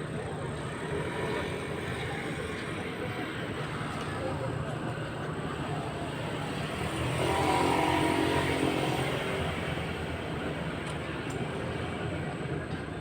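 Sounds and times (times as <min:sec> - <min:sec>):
higher-pitched engine sound: 0:06.5 - 0:10.0.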